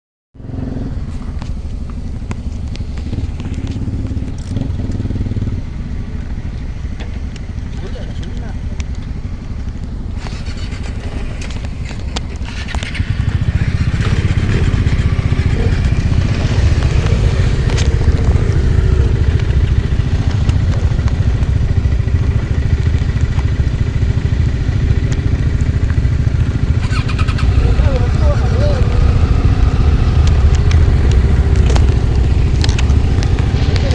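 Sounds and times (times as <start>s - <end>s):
road noise: 0.4s - 33.9s
vehicle engine running: 0.4s - 33.9s
sharp clicks: 8.8s - 23.7s.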